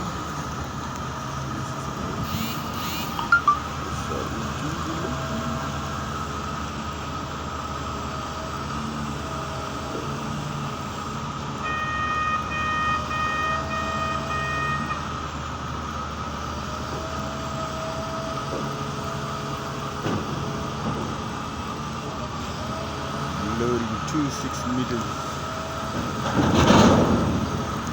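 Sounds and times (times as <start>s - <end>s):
diesel engines idling: 0.0s - 27.9s
electronic reversing beeps: 2.4s - 3.7s.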